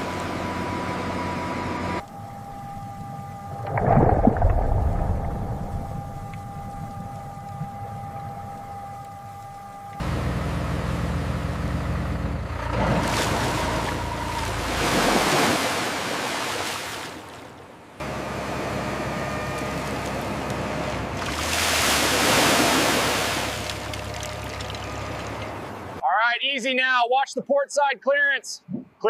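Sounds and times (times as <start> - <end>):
low engine hum: 0.0 - 16.0, 17.6 - 26.0
sea waves washing in: 3.5 - 8.5, 12.9 - 17.6, 21.0 - 24.6.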